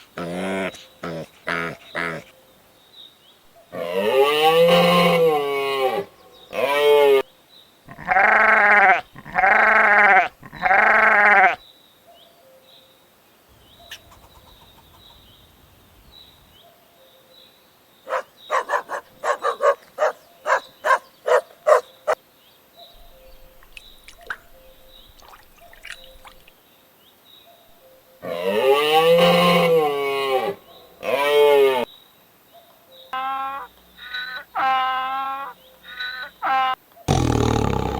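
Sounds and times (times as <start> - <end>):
loud bleats: 3.8 - 7.2, 7.9 - 11.6, 28.2 - 31.9, 36.4 - 37.9
faint high chirps: 22.8 - 26.5.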